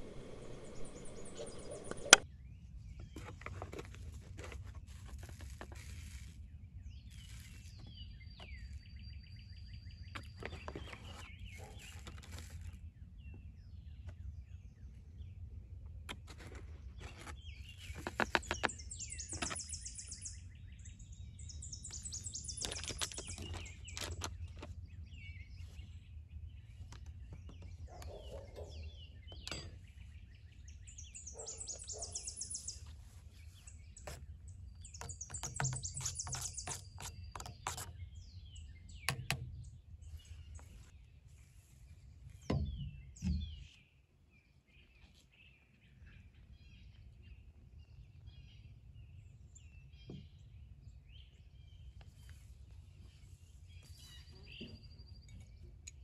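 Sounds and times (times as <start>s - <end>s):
knocks and clicks: 0.0s - 2.2s
low background rumble: 0.0s - 2.2s
small birds trilling: 0.0s - 3.8s, 6.8s - 56.0s.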